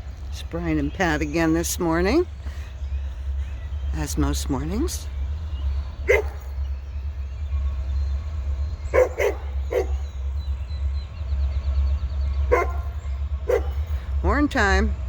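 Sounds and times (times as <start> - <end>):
steady low rumble: 0.0 - 15.0
dog barking: 6.0 - 6.6, 8.9 - 10.0, 12.5 - 13.8.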